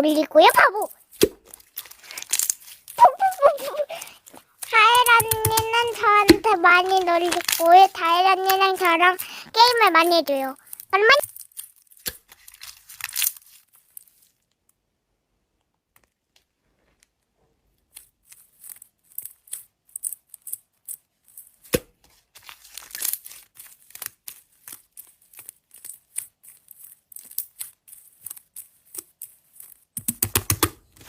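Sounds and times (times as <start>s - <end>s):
slime crackling when stretched: 0.4s - 14.5s, 22.4s - 30.0s.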